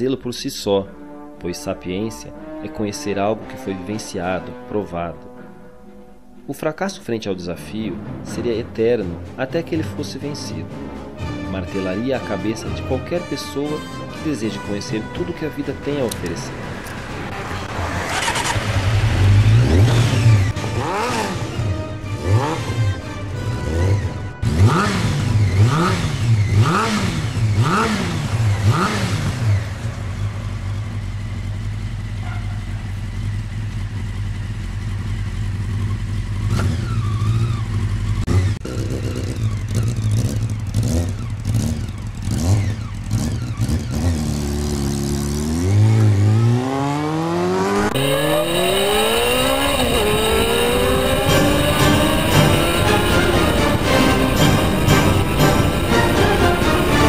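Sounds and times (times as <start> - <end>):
motorcycle engine on the road: 14.5 - 57.0
motorcycle engine revving: 16.1 - 57.0.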